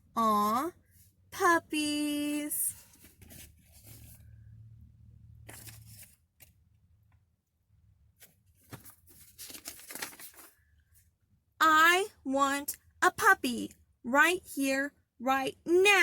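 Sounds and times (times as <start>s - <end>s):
book pages rustling: 2.7s - 4.4s, 5.4s - 6.6s, 8.1s - 10.7s.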